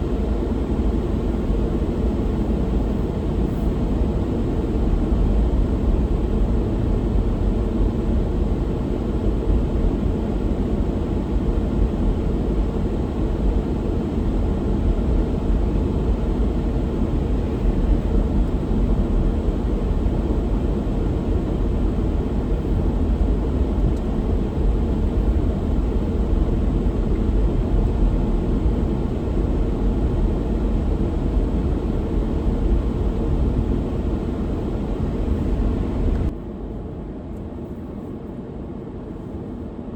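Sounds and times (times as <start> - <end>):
car road and engine rumble: 14.1 - 36.4.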